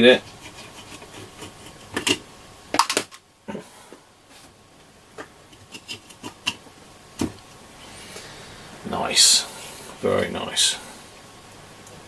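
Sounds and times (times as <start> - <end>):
clicks and knocks of radio parts: 2.8 - 3.2.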